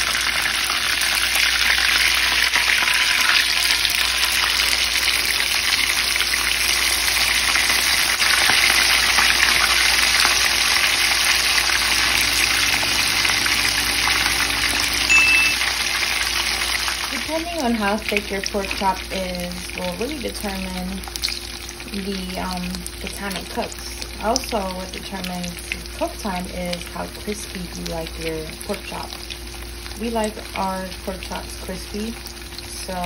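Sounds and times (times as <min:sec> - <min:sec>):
pork chop sizzling in oil: 0:00.0 - 0:33.0
short high beep: 0:15.0 - 0:15.8.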